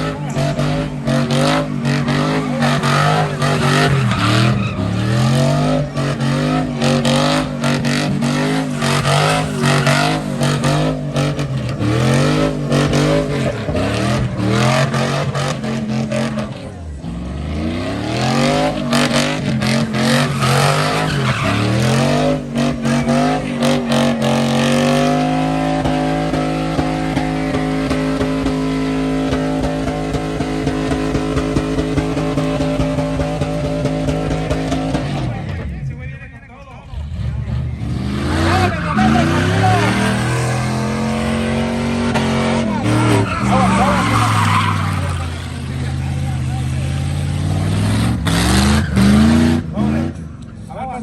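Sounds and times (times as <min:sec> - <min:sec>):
truck engine revving: 0:00.0 - 0:51.0.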